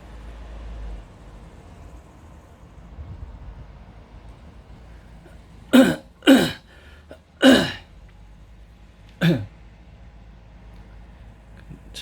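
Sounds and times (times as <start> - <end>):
man coughing: 5.7 - 6.8, 7.4 - 7.8, 9.2 - 9.5.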